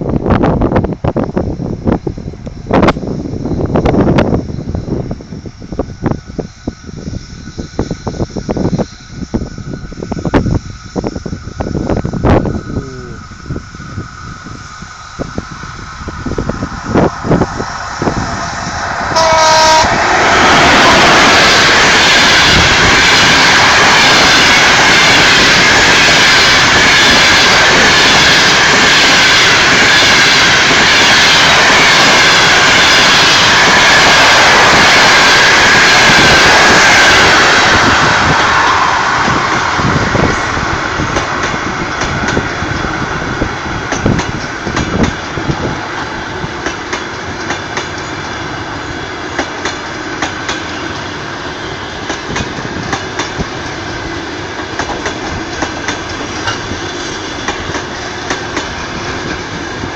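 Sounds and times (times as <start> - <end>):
passing train rushing: 0.0 - 59.9
train horn blast: 19.1 - 20.1
wheels clacking over rail joints: 38.2 - 59.9.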